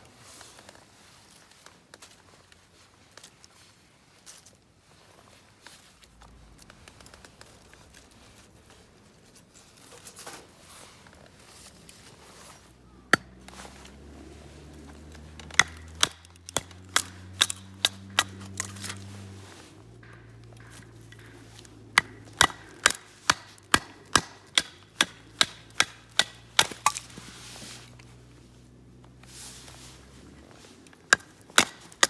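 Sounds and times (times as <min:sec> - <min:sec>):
hammer striking tent pegs: 0:15.1 - 0:19.0, 0:20.0 - 0:27.1.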